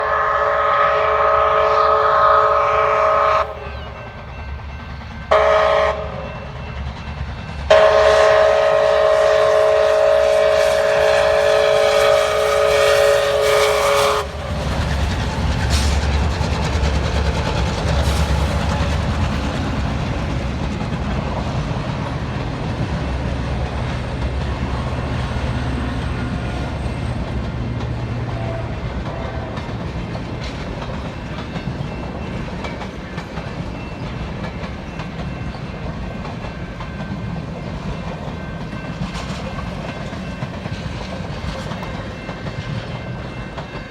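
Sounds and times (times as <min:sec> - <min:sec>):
steam locomotive whistle: 0:00.0 - 0:04.4, 0:05.3 - 0:06.6, 0:07.7 - 0:16.2, 0:28.1 - 0:29.8
train rumbling past: 0:00.0 - 0:43.9
wheels clicking over rail joints: 0:12.0 - 0:43.9.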